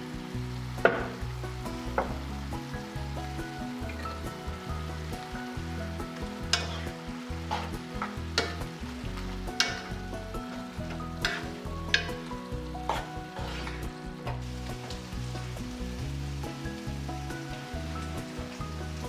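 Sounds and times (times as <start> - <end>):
noodles sizzling in a pan: 0.0 - 19.0
soft background music: 0.0 - 19.0
utensil scraping a pan: 6.2 - 16.1.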